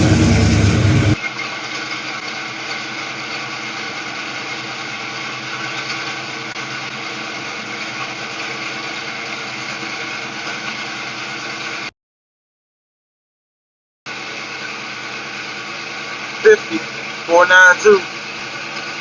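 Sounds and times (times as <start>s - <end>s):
car engine idling: 0.0s - 1.2s.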